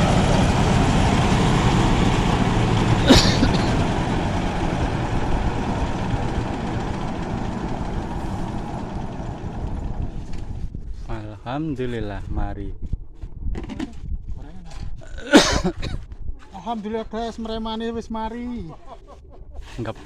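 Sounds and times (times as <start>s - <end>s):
threshing machine humming: 0.0s - 10.7s.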